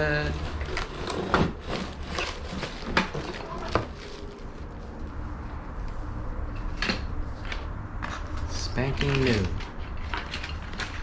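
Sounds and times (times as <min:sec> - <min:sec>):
knocks and clunks of handling: 0:00.4 - 0:04.2.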